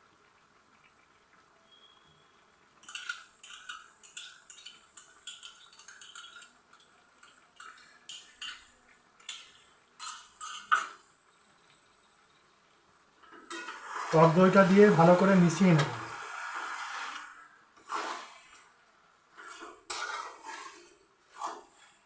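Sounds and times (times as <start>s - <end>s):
spoon scraping and knocking pot: 2.8s - 11.0s, 19.3s - 22.0s.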